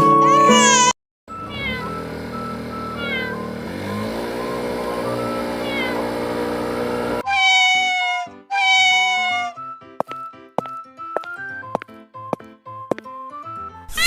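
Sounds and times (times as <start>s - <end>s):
cat meowing: 0.2s - 2.0s, 2.8s - 3.5s, 5.6s - 6.1s, 7.2s - 9.6s.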